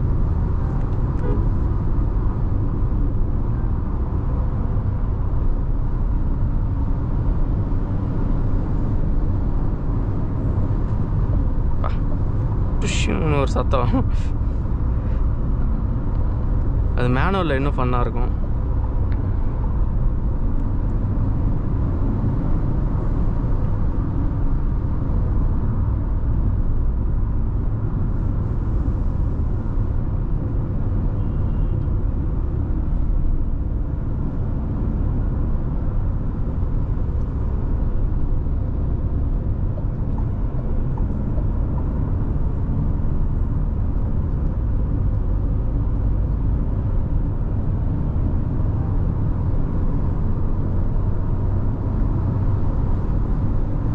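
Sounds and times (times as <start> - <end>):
car cruising on highway: 0.0 - 53.9.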